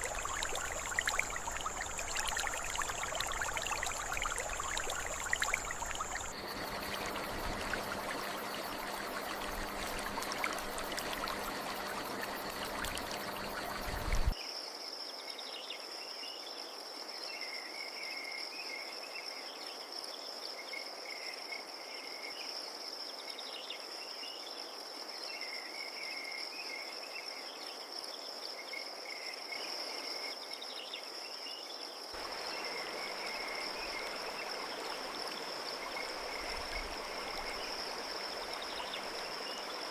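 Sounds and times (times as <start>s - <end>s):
crickets trilling: 0.0s - 14.4s, 32.1s - 39.9s.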